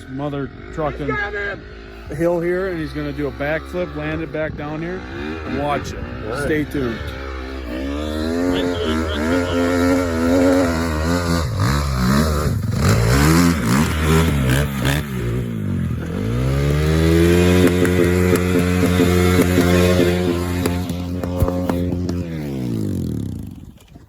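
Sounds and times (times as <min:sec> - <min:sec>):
dirt bike engine revving: 0:00.0 - 0:23.9
bike clattering over rough ground: 0:12.6 - 0:24.0.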